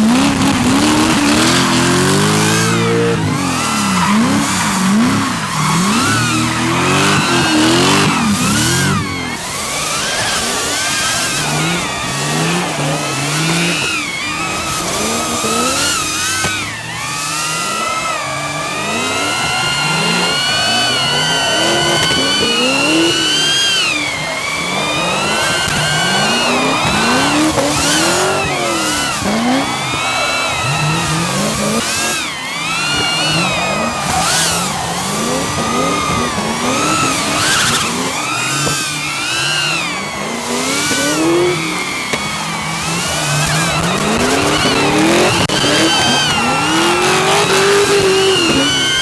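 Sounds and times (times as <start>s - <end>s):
car engines revving hard: 0.0s - 49.0s
drone motors whining: 0.0s - 49.0s.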